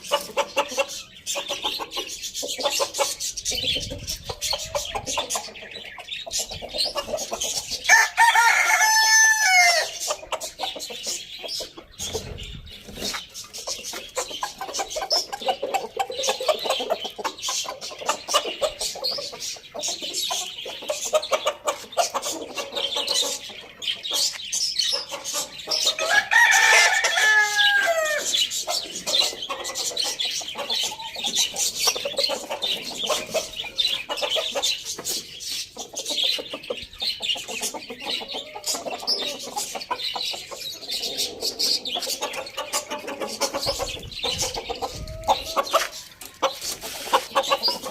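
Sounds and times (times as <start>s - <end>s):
chickens clucking: 0.0s - 47.9s
rooster crowing: 7.9s - 10.0s, 26.0s - 28.3s.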